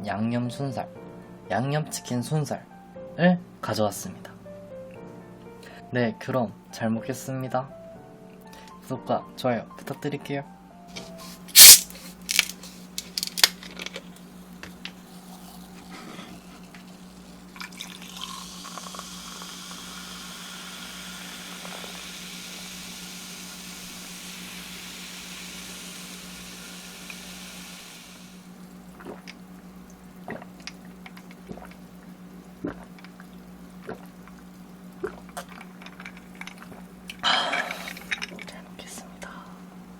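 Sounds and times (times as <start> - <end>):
hissing liquid: 11.4 - 13.5, 14.8 - 29.3.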